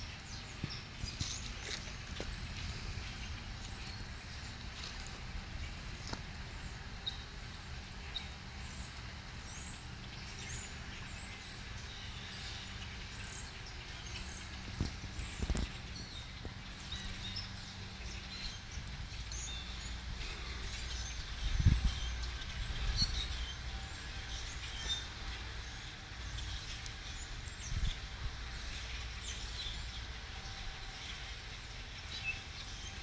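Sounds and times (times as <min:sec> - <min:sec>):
flock of birds chirping: 0:00.0 - 0:33.0
steady low rumble: 0:00.0 - 0:33.0.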